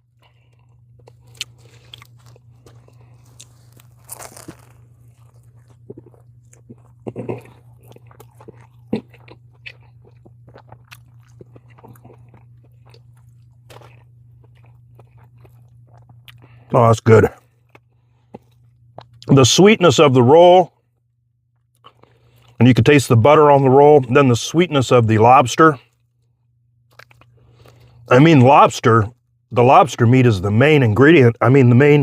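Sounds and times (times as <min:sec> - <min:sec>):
crunchy biting and chewing: 0:00.0 - 0:19.4, 0:21.5 - 0:22.8, 0:26.9 - 0:28.1
steady low hum: 0:00.0 - 0:32.0.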